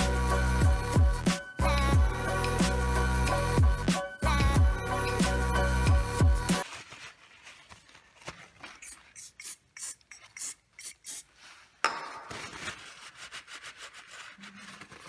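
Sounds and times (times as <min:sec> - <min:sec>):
rubbing and scraping on a surface: 0:06.6 - 0:15.0.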